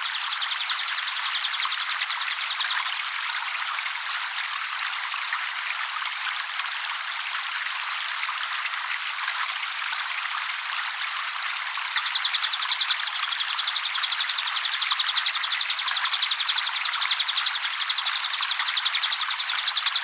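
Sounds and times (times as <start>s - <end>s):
water trickling: 0.0s - 3.2s.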